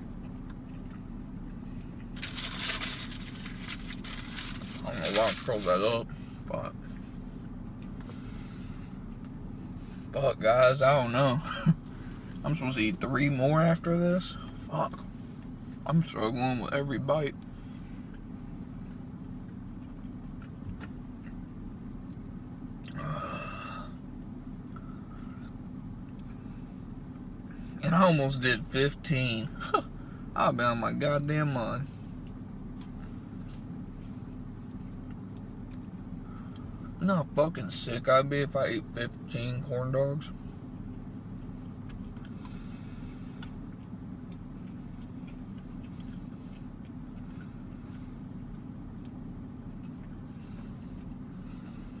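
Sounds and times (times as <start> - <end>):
car engine idling: 0.0 - 52.0
low hum: 0.0 - 52.0
man's throaty vocal sound: 22.9 - 23.9
chewing clicks: 43.4 - 50.2.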